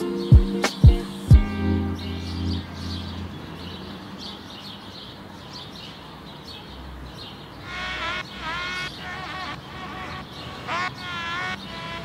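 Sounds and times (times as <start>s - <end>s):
held music chord: 0.0s - 4.0s
faint bird chirping: 0.0s - 12.0s.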